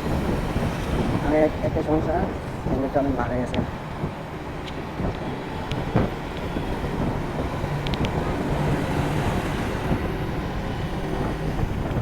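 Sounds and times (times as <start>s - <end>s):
road and vehicle noise: 0.0s - 12.0s
wind on microphone: 0.0s - 12.0s.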